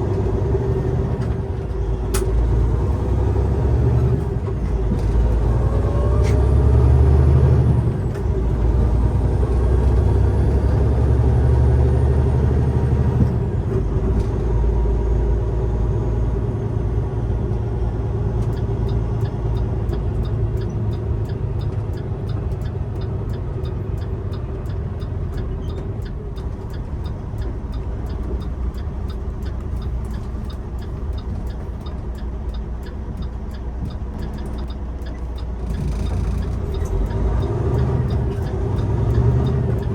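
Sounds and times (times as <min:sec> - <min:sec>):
truck engine rumbling: 0:00.0 - 0:39.9
faint regular ticking: 0:18.4 - 0:39.9.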